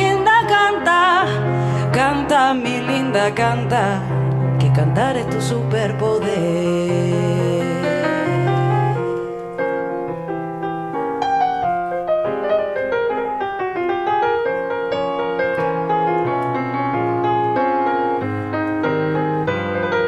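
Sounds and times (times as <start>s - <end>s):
piano playing: 0.0s - 20.0s.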